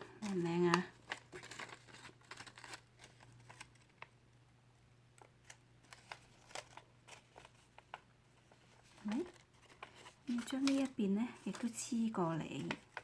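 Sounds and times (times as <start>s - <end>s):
paper taps and rustles: 0.2s - 4.1s, 5.2s - 11.8s, 12.4s - 13.0s.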